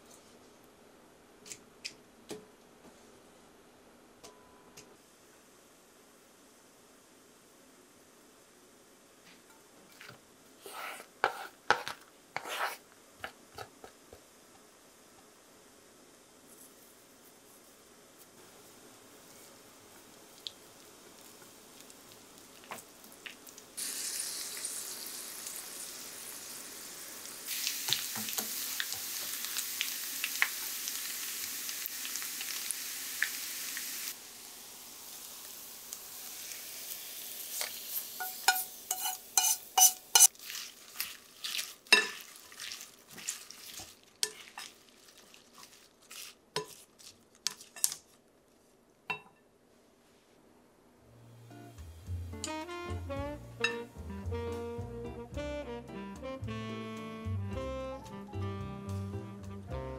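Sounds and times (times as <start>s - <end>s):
fish sizzling in oil: 19.3s - 46.8s.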